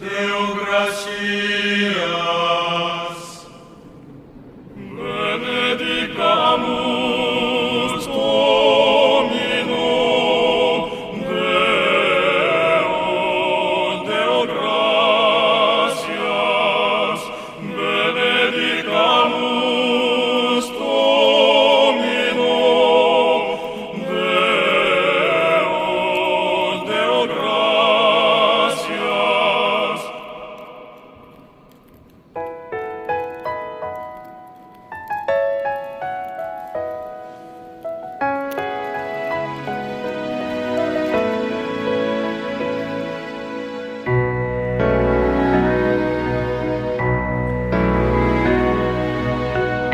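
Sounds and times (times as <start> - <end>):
operatic singing with vibrato: 0.0 - 31.7, 38.5 - 44.1.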